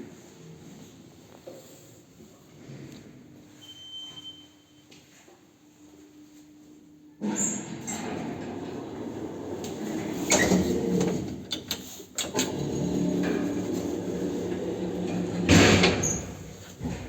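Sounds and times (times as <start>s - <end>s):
lift doors sliding: 7.2s - 17.0s.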